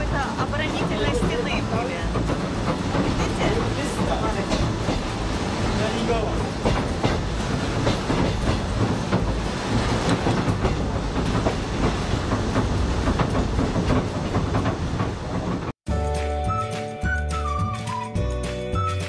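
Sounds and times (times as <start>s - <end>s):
train carriage rumbling: 0.0s - 15.8s
wheels clacking over rails: 0.0s - 15.8s
music with piping melody: 15.9s - 19.0s.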